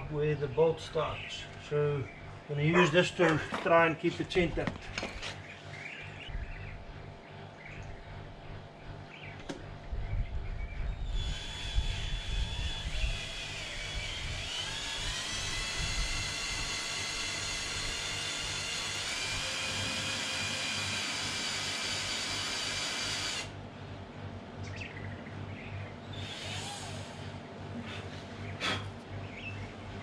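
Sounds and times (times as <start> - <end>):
power drill whining: 11.0 - 23.5, 26.2 - 27.4.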